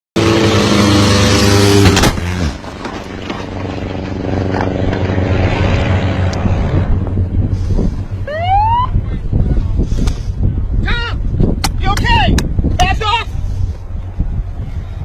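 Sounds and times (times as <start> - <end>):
aircraft engine running: 0.2 - 11.4.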